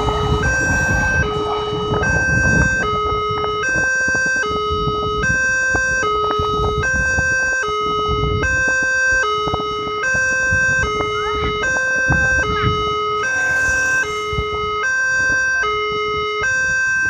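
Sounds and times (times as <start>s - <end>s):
low rumble: 0.0s - 8.7s
two-tone warning siren: 0.0s - 17.0s.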